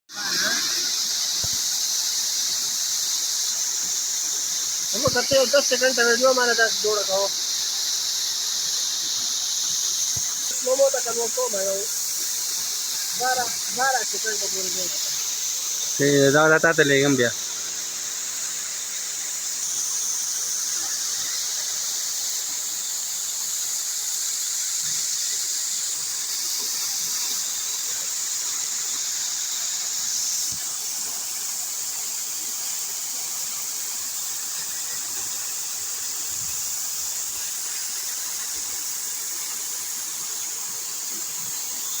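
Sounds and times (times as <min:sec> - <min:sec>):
waterfall rushing: 0:00.1 - 0:32.8.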